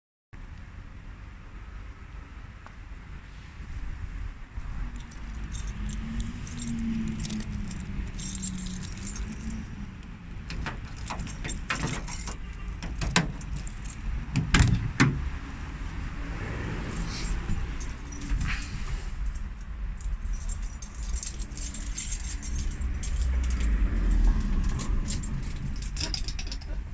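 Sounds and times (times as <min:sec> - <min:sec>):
engine running with low rumble: 0:00.4 - 0:26.9
metallic clatter and ticking: 0:05.0 - 0:16.2, 0:16.8 - 0:26.9
engine knocks: 0:10.3 - 0:19.0.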